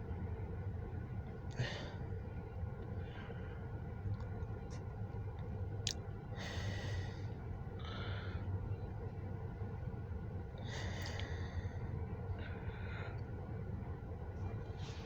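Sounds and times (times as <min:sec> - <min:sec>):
steady low hum: 0:00.0 - 0:15.0
person breathing: 0:01.5 - 0:02.0, 0:03.0 - 0:03.7, 0:06.4 - 0:08.5, 0:10.6 - 0:13.2.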